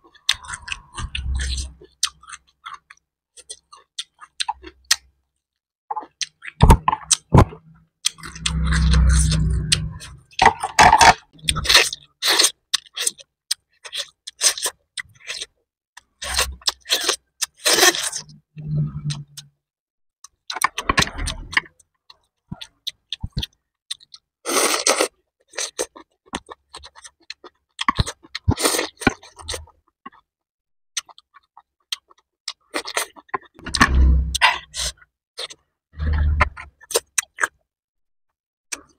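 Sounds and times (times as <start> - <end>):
wet chewing and crunching: 0.0 - 19.5, 20.2 - 30.3, 31.0 - 37.7.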